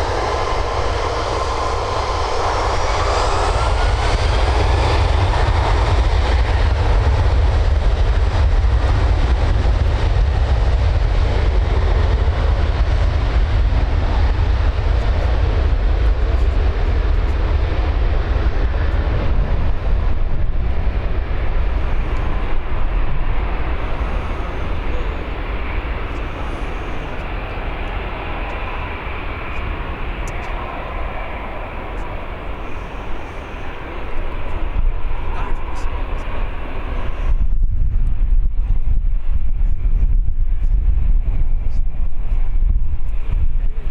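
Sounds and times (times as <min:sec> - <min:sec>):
jet engines rumbling: 0:00.0 - 0:43.9.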